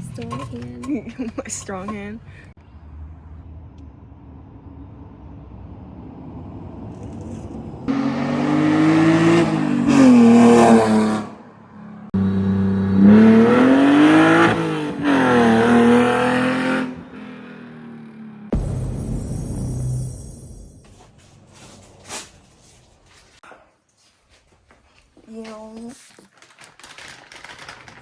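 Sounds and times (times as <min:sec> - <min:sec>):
car engine idling and revving: 0:00.0 - 0:23.4.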